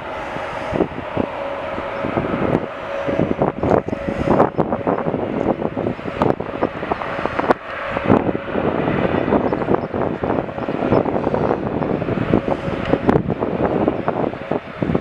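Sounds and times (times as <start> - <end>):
jet airliner engine noise: 0.0 - 15.0
wind buffeting microphone: 0.0 - 15.0.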